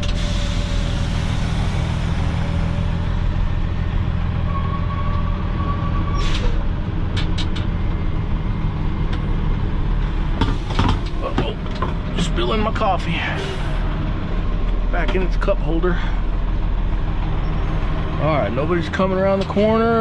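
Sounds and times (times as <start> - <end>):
air hissing: 0.0 - 3.6, 10.4 - 11.6, 13.2 - 13.8
truck diesel engine running: 0.0 - 20.0.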